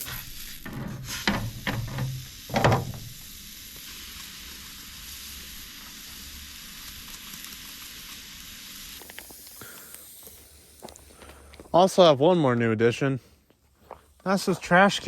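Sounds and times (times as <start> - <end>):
steak sizzling in a frying pan: 0.0 - 11.0.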